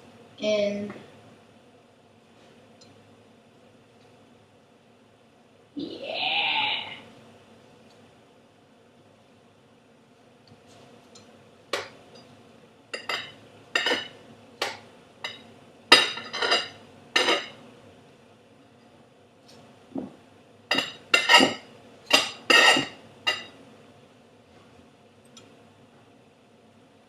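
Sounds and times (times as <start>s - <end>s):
knife clinking on kitchenware: 13.0s - 14.1s, 16.0s - 17.6s, 20.7s - 23.6s.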